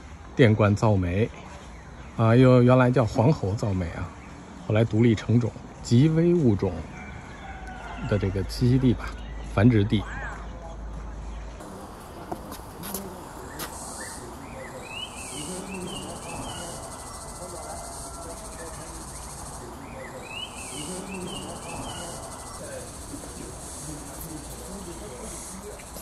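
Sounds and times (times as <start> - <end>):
bird chirping: 11.6 - 26.0
insects hissing: 11.6 - 26.0.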